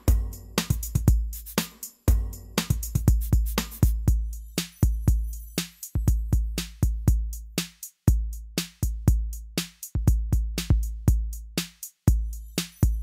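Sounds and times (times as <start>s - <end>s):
electronic drum machine beat: 0.0s - 13.0s.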